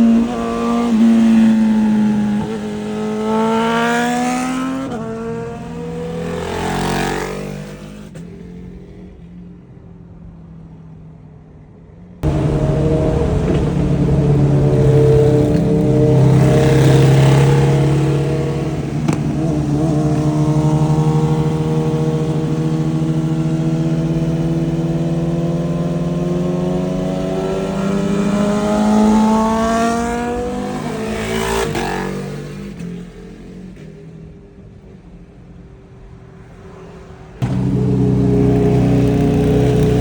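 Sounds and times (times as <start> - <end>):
motorcycle engine accelerating: 12.2 - 32.8, 37.4 - 40.0.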